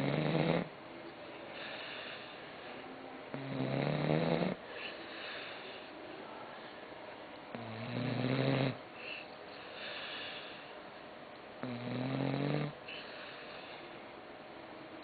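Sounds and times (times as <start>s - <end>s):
dog snoring: 0.0s - 0.7s, 3.3s - 5.8s, 7.5s - 10.6s, 11.6s - 13.7s.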